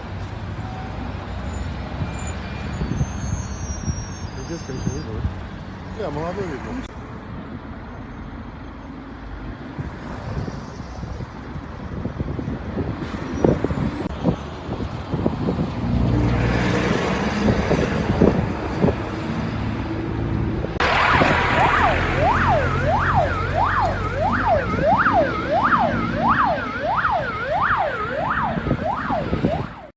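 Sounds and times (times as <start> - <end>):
vehicle engine noise: 0.0 - 29.9
siren yelping: 20.8 - 29.9.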